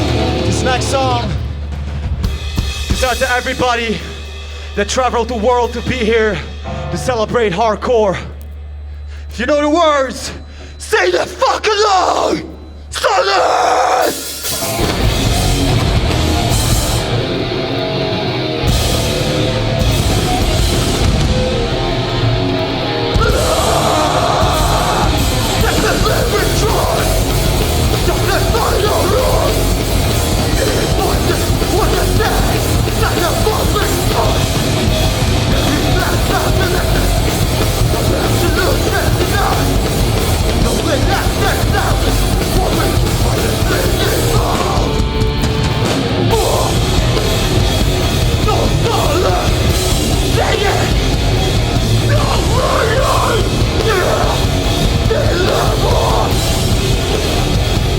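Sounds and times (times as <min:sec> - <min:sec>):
pounding drum kit: 0:00.0 - 0:06.7, 0:13.8 - 0:57.9
distorted electric guitars: 0:00.0 - 0:07.5, 0:08.2 - 0:57.9
bass guitar: 0:00.0 - 0:08.9, 0:13.8 - 0:57.9
shouted vocals: 0:10.8 - 0:14.3, 0:23.1 - 0:45.2, 0:46.1 - 0:47.6, 0:48.2 - 0:56.9.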